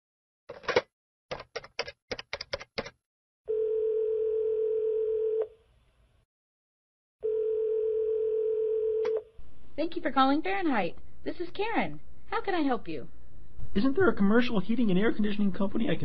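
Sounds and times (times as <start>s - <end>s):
phone ringback tone: 3.5s - 5.6s, 7.2s - 9.3s.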